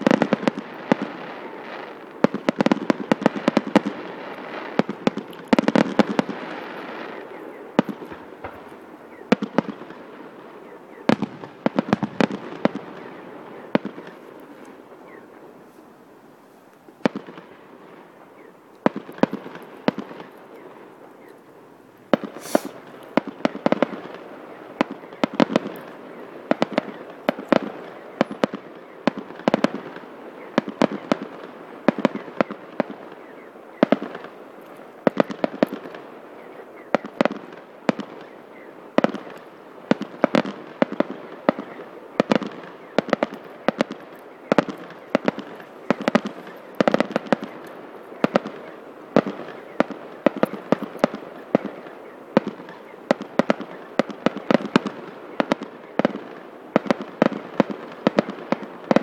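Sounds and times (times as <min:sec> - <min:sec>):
firework shells bursting: 0:22.1 - 0:23.9.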